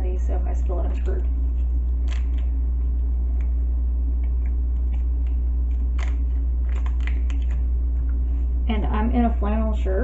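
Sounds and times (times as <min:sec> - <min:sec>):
steady low hum: 0:00.0 - 0:10.0
drink packet crinkling and clicks: 0:02.0 - 0:02.5, 0:04.2 - 0:07.6.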